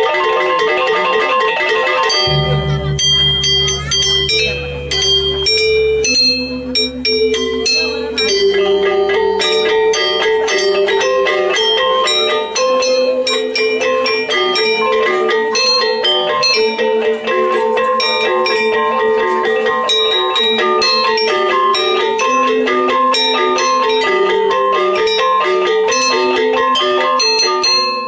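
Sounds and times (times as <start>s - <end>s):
gamelan metallophones playing: 0.1s - 28.0s
low hum: 2.3s - 7.7s.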